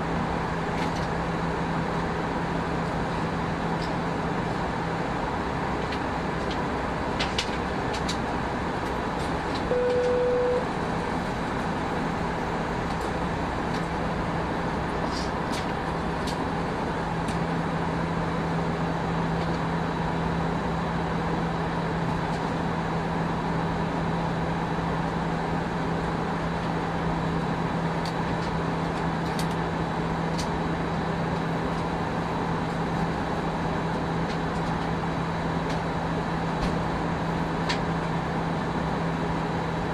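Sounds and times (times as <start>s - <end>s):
airplane cabin noise: 0.0s - 39.9s
short steady tone: 9.7s - 10.7s.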